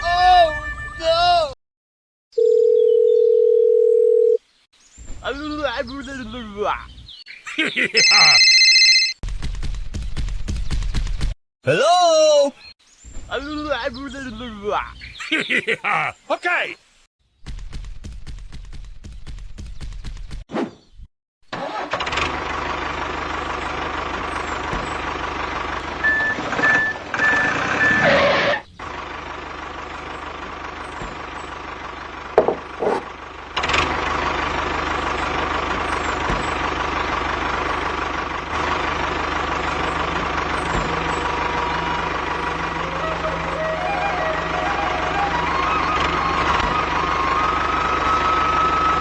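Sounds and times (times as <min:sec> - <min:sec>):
knocks: 0:32.4 - 0:33.2.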